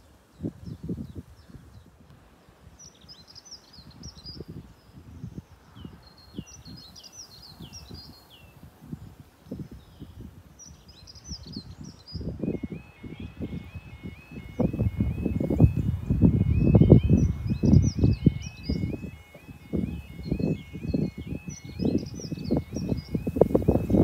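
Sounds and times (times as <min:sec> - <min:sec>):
songbird singing: 0:00.0 - 0:24.0
wind buffeting microphone: 0:00.0 - 0:24.0.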